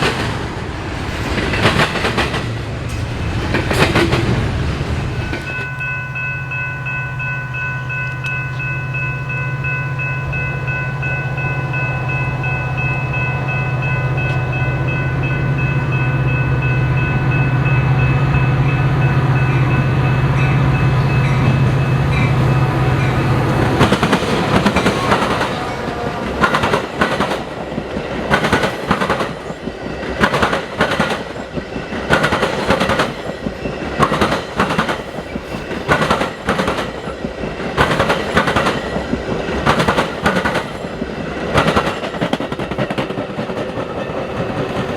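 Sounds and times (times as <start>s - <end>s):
train wheels clattering on rail joints: 0.0s - 5.9s, 23.7s - 44.9s
diesel locomotive engine drone: 0.0s - 44.9s.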